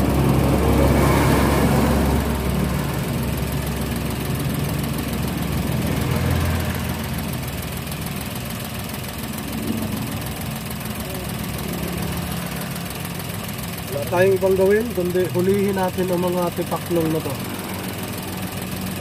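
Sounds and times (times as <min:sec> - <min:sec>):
car engine idling roughly: 0:00.0 - 0:19.0.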